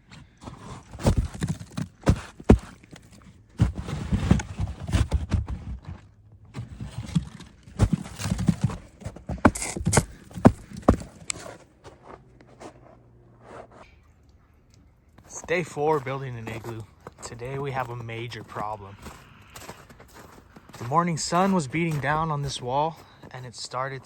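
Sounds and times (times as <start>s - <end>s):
shovel crunching snow: 0.4s - 5.4s, 6.7s - 13.9s, 15.3s - 24.0s
footsteps in snow: 0.4s - 6.0s, 6.6s - 13.9s, 15.2s - 24.0s
snow blocks thumping: 0.4s - 6.0s, 6.6s - 12.0s.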